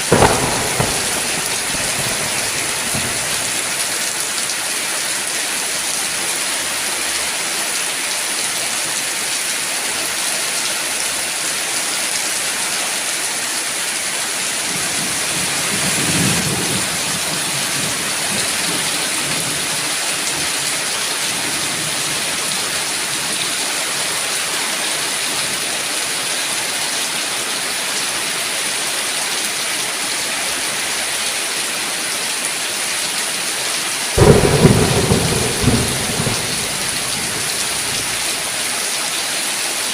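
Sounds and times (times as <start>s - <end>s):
loud thunderclap: 0.0s - 3.9s, 34.2s - 38.4s
low thunder rumble: 0.0s - 4.0s, 34.2s - 38.4s
heavy rain: 0.0s - 39.9s.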